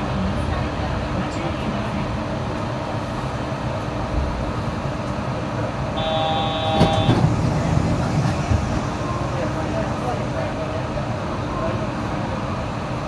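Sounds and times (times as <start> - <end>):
train running rumble: 0.0 - 13.0
brief electronic tone: 6.0 - 7.2.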